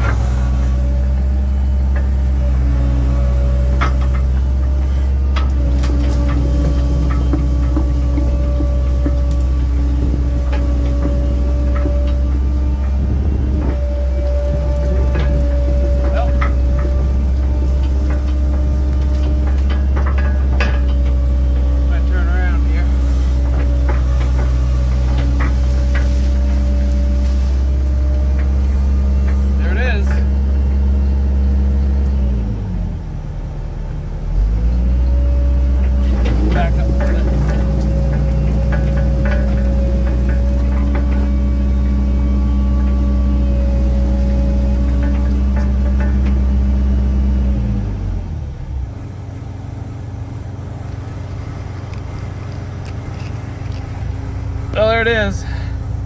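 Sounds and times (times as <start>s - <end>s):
excavator diesel engine droning: 0.0s - 56.0s.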